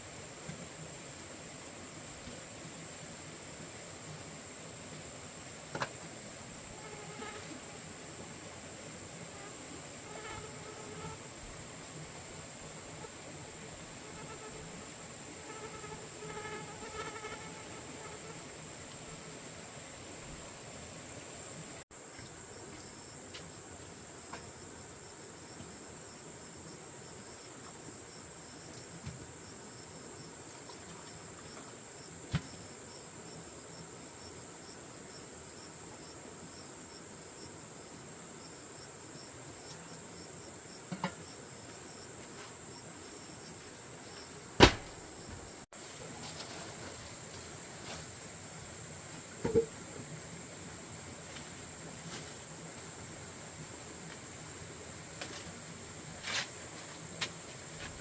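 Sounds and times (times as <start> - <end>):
sharp knocks: 44.6 - 45.4.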